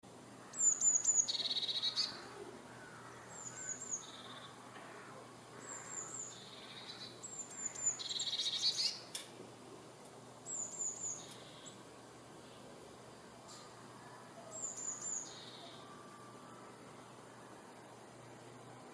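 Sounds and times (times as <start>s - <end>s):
songbird singing with trill: 0.4s - 4.7s, 5.6s - 9.1s, 10.4s - 11.9s, 13.5s - 16.6s.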